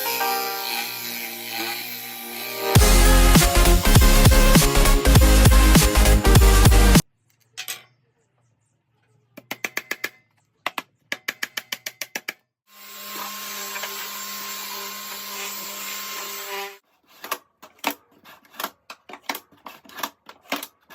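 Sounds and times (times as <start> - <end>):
power tool motor running: 0.0 - 6.8, 12.7 - 16.8.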